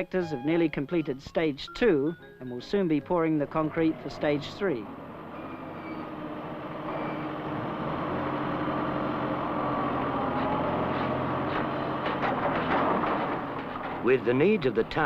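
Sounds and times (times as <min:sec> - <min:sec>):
heavy engine running: 0:03.0 - 0:15.0.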